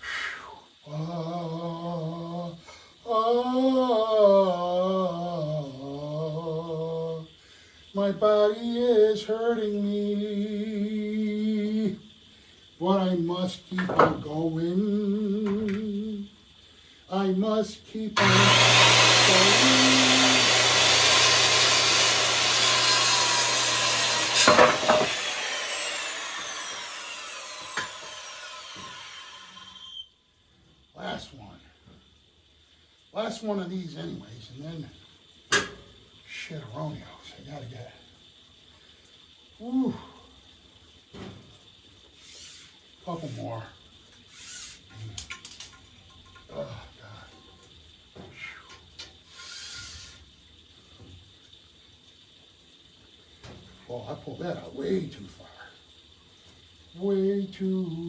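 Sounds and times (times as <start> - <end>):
man singing wordless tune: 0.8 - 7.3, 8.0 - 12.1, 12.8 - 16.4, 17.1 - 18.5, 19.1 - 20.5, 57.0 - 58.0
power saw cutting wood: 18.2 - 30.0, 49.4 - 50.2
saw blade winding down: 18.2 - 30.1, 49.3 - 50.2.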